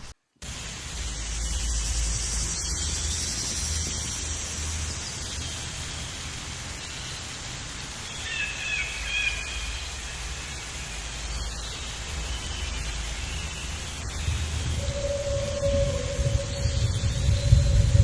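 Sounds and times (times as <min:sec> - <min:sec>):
background hiss: 0:00.0 - 0:18.0
low rumble: 0:12.1 - 0:18.0.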